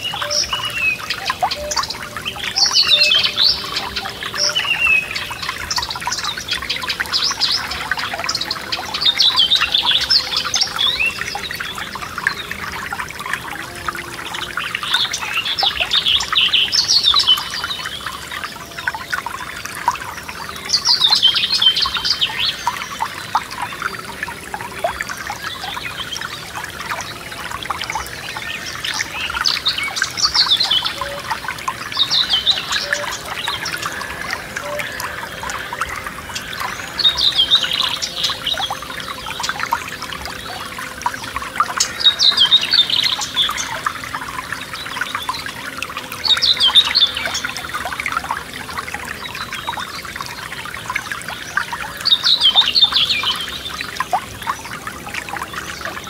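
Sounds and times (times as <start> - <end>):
songbird singing: 0.0 - 56.0
stream trickling and babbling: 0.0 - 56.0.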